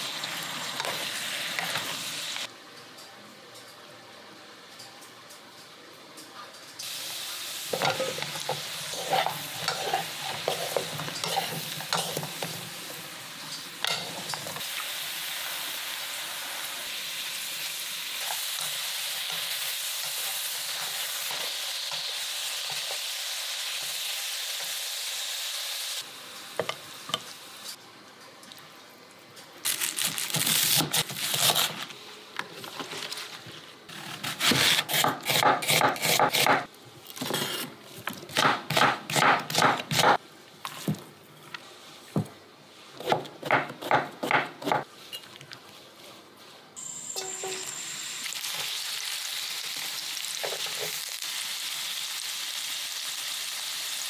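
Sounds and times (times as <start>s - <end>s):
vegetables sizzling in a wok: 0.0s - 2.5s, 6.8s - 27.8s, 46.8s - 54.0s
spatulas scraping a pan: 7.7s - 12.6s
knife chopping on cutting board: 34.2s - 36.6s, 38.3s - 40.2s, 43.0s - 44.8s.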